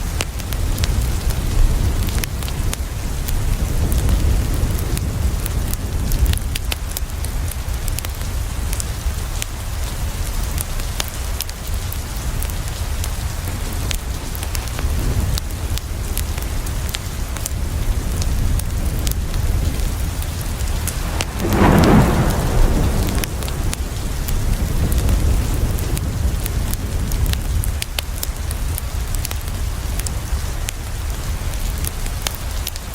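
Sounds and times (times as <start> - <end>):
heavy rain: 0.0 - 32.9
thunder rolling: 18.5 - 27.6.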